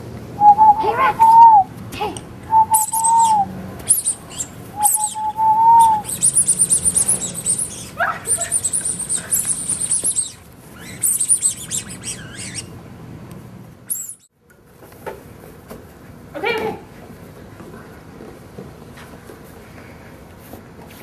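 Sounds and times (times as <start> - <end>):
short whistled notes: 2.5 - 7.6
small birds chirping: 2.5 - 12.8, 13.9 - 14.3.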